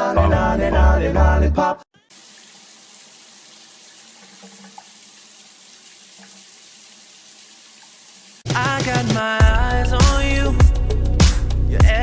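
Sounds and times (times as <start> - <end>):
water running into a sink: 2.1 - 8.5.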